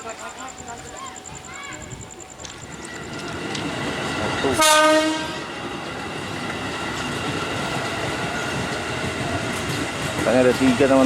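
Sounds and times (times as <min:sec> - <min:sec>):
train rumbling on track: 0:00.0 - 0:11.0
train horn blast: 0:04.4 - 0:05.6.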